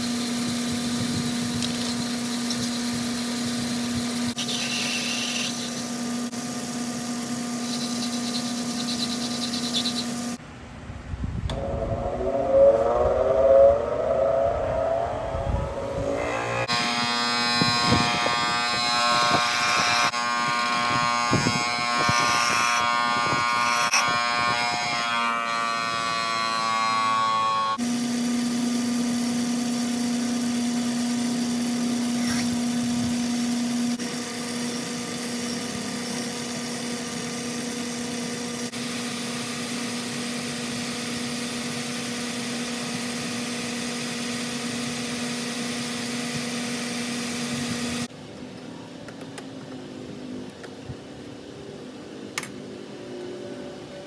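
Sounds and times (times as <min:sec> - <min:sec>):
machine hum: 0:11.0 - 0:25.5
metal lathe cutting: 0:16.0 - 0:26.2.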